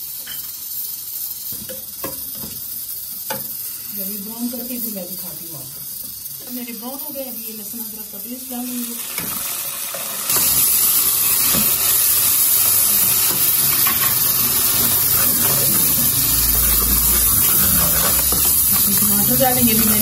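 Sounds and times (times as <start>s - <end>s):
paste sizzling in hot oil: 0.0s - 20.0s
ladle stirring in pot: 12.7s - 20.0s.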